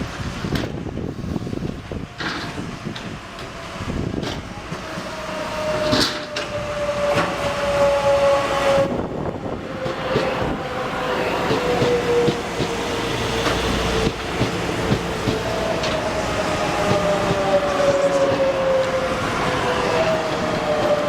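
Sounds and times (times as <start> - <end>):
train running on rails: 0.0 - 21.0
train whine: 0.0 - 21.0
train wheel clicks: 11.4 - 16.1.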